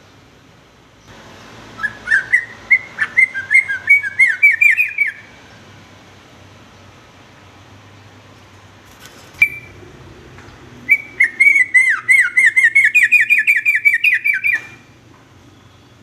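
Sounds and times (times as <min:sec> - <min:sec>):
bulbul singing whistled notes: 0:01.7 - 0:05.4, 0:09.4 - 0:09.8, 0:10.9 - 0:14.9.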